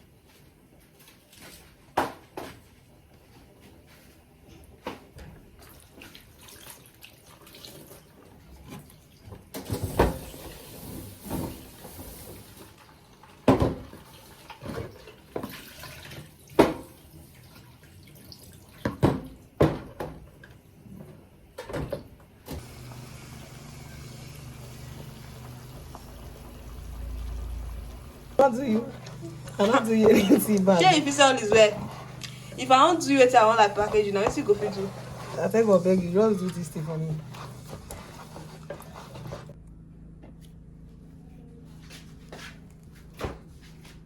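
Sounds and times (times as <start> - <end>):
tap running: 22.5 - 39.5.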